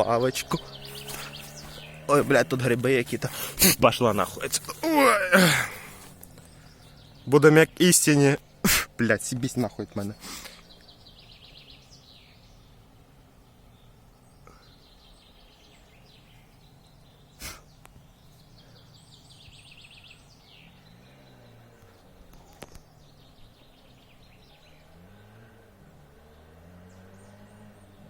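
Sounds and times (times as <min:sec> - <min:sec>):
distant motorcycle engine revving: 0:00.0 - 0:28.0
small birds trilling: 0:00.0 - 0:28.0.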